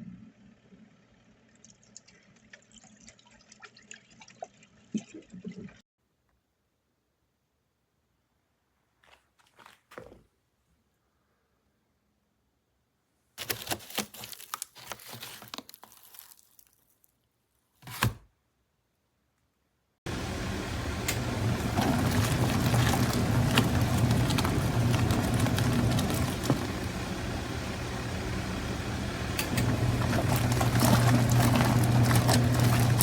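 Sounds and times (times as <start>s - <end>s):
churning rattle: 20.1s - 33.0s
washing machine motor humming: 20.1s - 33.0s.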